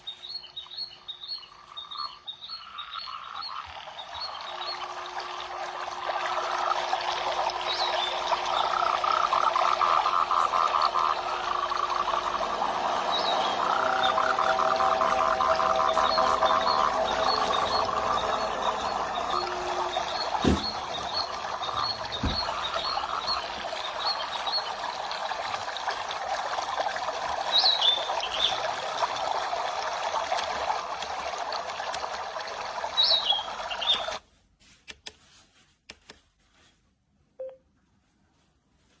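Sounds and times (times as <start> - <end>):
bird chirps: 0.0 - 5.0, 10.2 - 25.3, 32.9 - 34.2
running water: 0.0 - 34.2.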